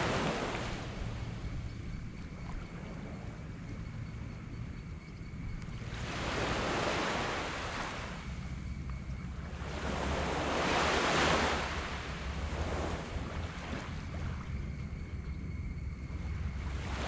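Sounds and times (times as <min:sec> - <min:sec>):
waves washing onto sand: 0:00.0 - 0:00.9, 0:09.6 - 0:14.0.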